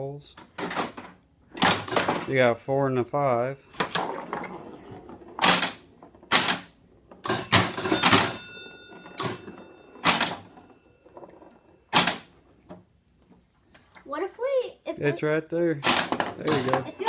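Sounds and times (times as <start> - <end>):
pinball machine mechanical clacks: 0.5 - 2.5, 5.4 - 12.4, 15.8 - 17.0
pinball bell ringing: 1.6 - 4.8, 7.2 - 12.5, 16.0 - 17.0.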